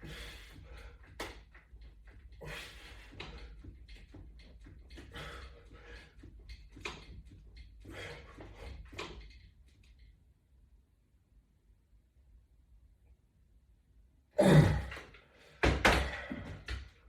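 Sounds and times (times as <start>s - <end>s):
person breathing hard: 0.0s - 1.2s, 2.3s - 3.7s, 5.0s - 6.2s, 7.8s - 8.8s
workout equipment clicks and knocks: 0.3s - 10.2s, 14.8s - 17.0s.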